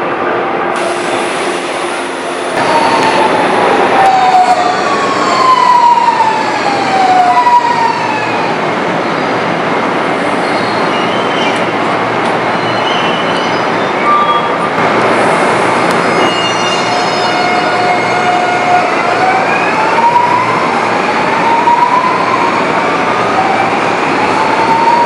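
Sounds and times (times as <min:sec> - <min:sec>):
wheels rumbling on rail: 0:00.0 - 0:25.0
high brake squeaks: 0:16.1 - 0:17.4.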